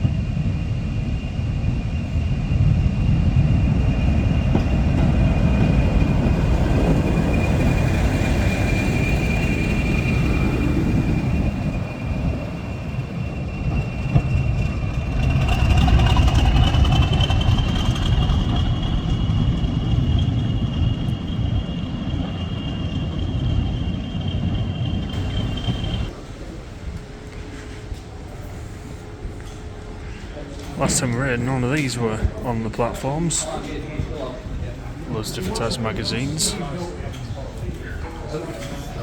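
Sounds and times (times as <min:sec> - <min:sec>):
diesel locomotive engine rumble: 0:00.0 - 0:39.0
high whine: 0:00.1 - 0:26.1, 0:35.1 - 0:36.8.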